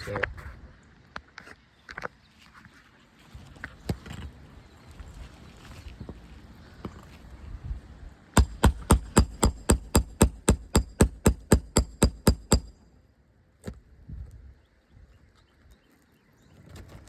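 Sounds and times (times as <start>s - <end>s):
hammer tapping on shingle: 8.4s - 12.8s.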